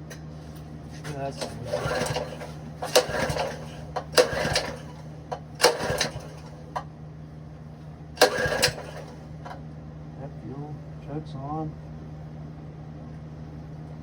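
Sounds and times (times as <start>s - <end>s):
recoil starter pulls: 0.1s - 6.9s, 8.2s - 9.6s.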